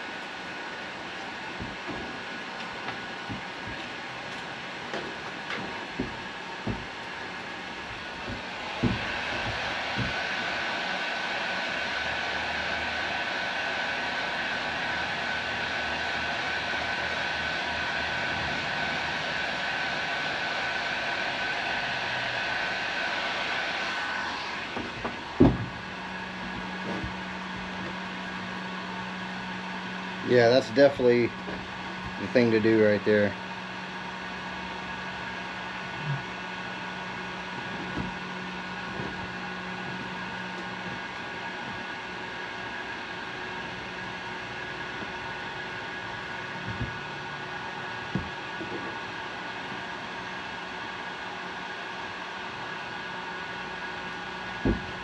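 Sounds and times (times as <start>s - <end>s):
heat gun blowing: 0.0s - 50.7s
small fan motor whirring: 0.0s - 55.0s
light knocks: 1.6s - 7.1s
loud thump: 8.2s - 10.2s, 24.8s - 25.9s, 54.6s - 55.0s.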